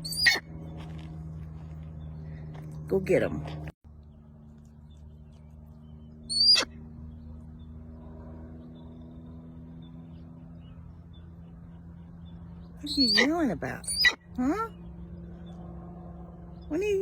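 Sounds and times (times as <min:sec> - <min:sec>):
high-pitched animal call: 0:00.0 - 0:00.4, 0:06.3 - 0:06.7, 0:12.8 - 0:14.7
steady low hum: 0:00.0 - 0:17.0.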